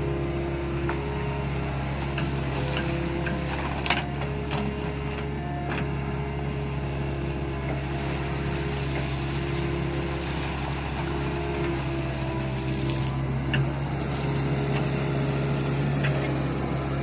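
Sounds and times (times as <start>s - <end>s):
diesel engine running: 0.0s - 17.0s
hydraulic whine: 0.0s - 17.0s.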